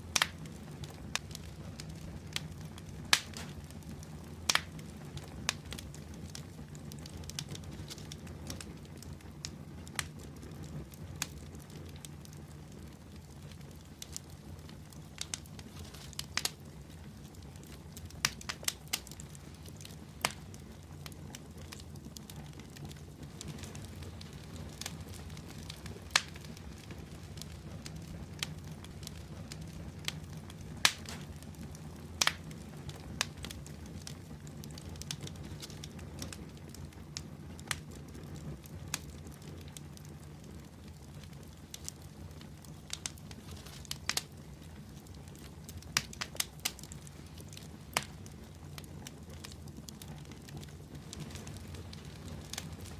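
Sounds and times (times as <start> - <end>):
fire low rumble: 0.0 - 52.9
wood fire crackling and popping: 0.0 - 52.9.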